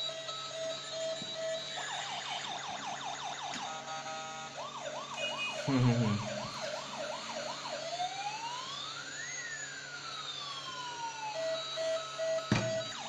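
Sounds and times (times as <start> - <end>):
siren wail: 0.0 - 13.0
siren yelp: 0.0 - 13.0.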